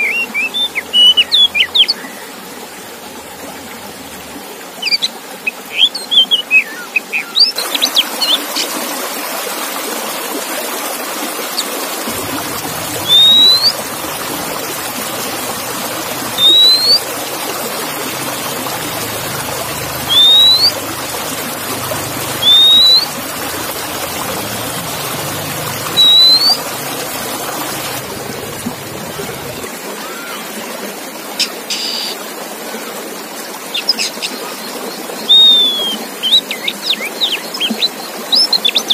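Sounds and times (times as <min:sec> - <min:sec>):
songbird chirps and whistles: 0:12.8 - 0:17.6, 0:19.9 - 0:21.4, 0:22.2 - 0:23.6, 0:25.9 - 0:26.6, 0:35.3 - 0:36.7.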